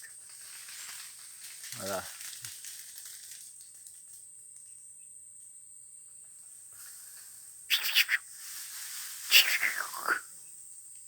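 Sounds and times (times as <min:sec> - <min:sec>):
high-pitched insect drone: 0:09.3 - 0:10.9.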